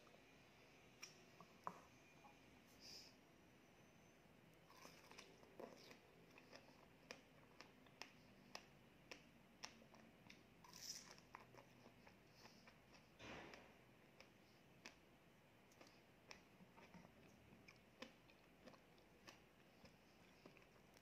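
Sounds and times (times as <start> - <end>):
wet chewing smacks: 15.7 - 21.0.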